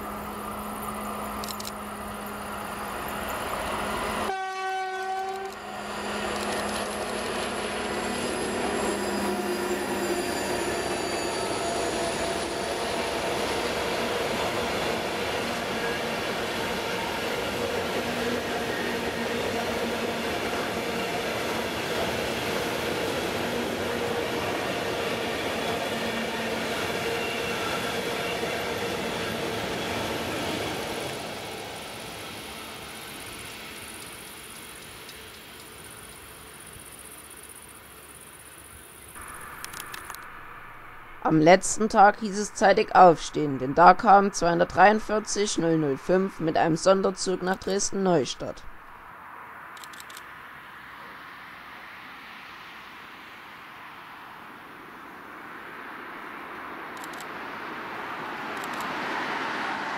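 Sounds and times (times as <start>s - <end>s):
freight train rumbling past: 0.0s - 49.2s, 53.3s - 59.9s
locomotive horn blast: 3.9s - 12.6s.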